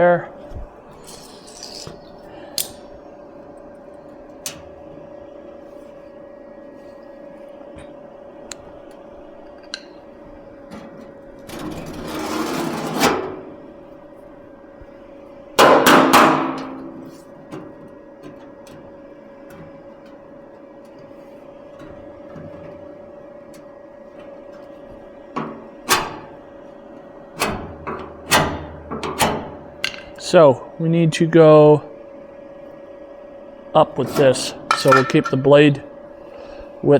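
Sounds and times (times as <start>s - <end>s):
faint steady hum: 0.0s - 36.9s
loud ringing metal clang: 15.6s - 17.1s, 34.4s - 35.6s
metallic clanks on steel fender: 34.1s - 35.5s.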